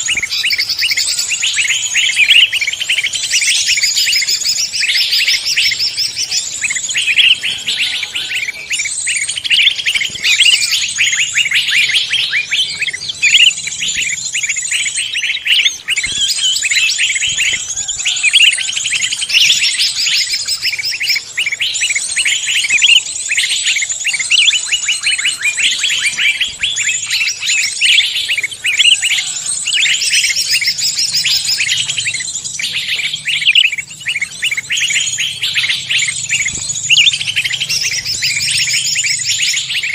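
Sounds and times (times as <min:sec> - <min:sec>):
songbirds chorus: 0:00.0 - 0:39.9.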